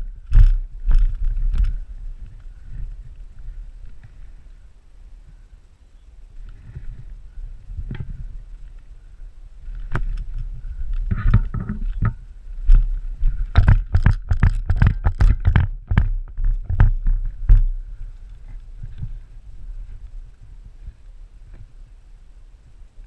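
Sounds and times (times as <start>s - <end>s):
low rumble: 0.0s - 23.0s
sharp knocks and thumps: 11.0s - 17.8s.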